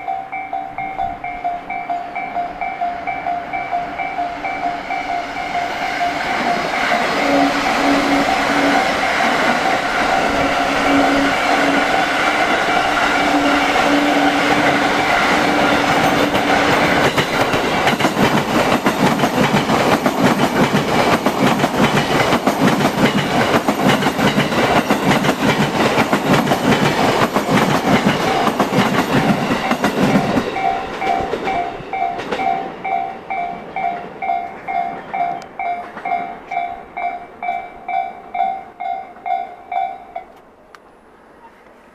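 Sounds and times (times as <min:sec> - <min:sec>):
electronic warning bell ringing: 0:00.0 - 0:07.2
train wheels clattering: 0:04.5 - 0:37.7.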